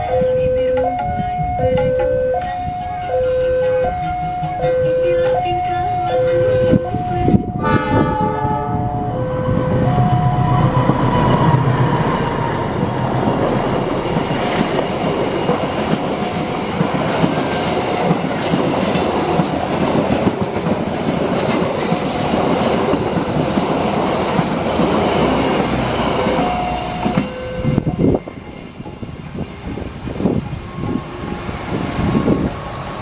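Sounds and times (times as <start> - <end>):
level crossing alarm chimes: 0.0 - 7.6, 8.5 - 11.1, 26.6 - 28.6
train wheels on rails: 0.0 - 33.0.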